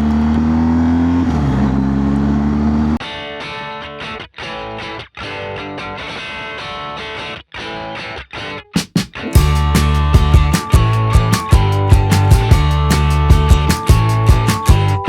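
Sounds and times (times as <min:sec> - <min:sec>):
electric guitar music: 0:03.0 - 0:15.0.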